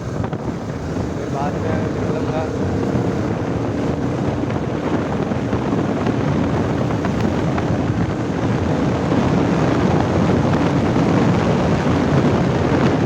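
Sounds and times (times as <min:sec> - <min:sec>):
motorcycle engine running: 0:00.0 - 0:13.0
wind noise on microphone: 0:00.0 - 0:13.0.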